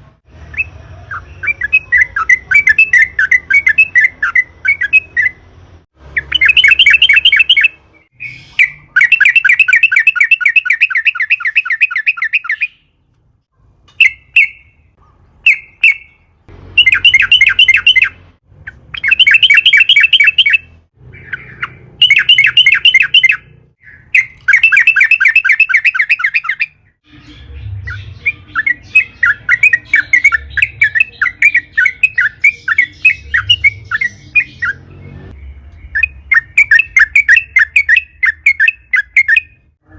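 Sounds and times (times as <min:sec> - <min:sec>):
rapid bird chattering: 0:16.8 - 0:34.8.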